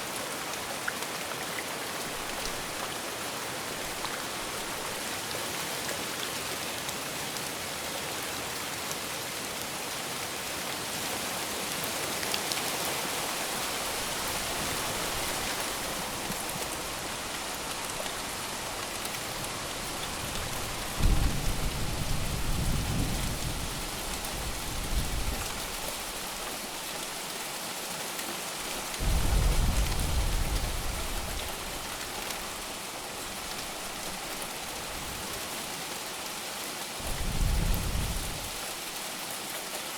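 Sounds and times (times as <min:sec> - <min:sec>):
heavy rain falling: 0:00.0 - 0:39.9
thunder rumbling: 0:29.0 - 0:31.9, 0:37.0 - 0:38.6.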